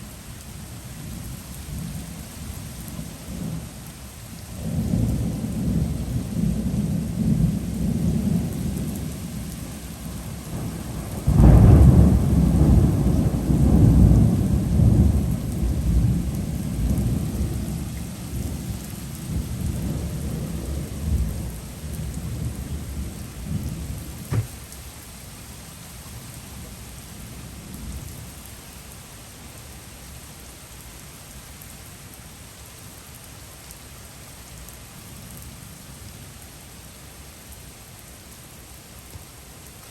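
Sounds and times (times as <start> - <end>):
heavy rain: 0.0 - 39.9
thunder rumbling: 11.3 - 17.8.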